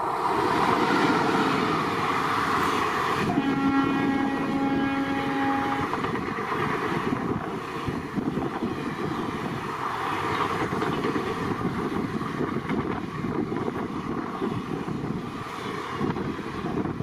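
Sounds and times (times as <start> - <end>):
train passing at speed: 0.0 - 17.0
train horn: 3.2 - 6.0.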